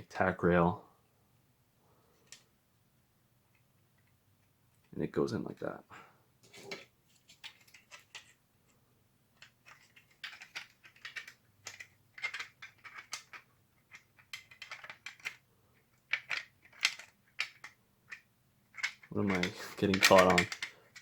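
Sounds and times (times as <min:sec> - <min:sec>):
plastic clicks and scrapes: 0:06.4 - 0:08.4, 0:09.4 - 0:21.0.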